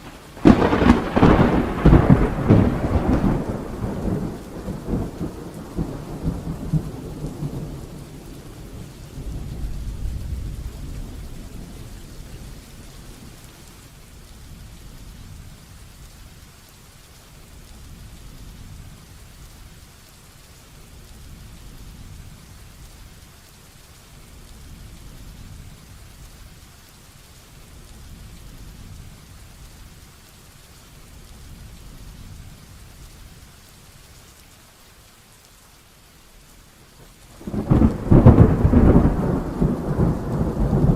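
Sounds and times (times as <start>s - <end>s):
thunder rumbling: 0.0s - 16.2s, 37.0s - 40.9s
heavy rain: 0.0s - 40.9s.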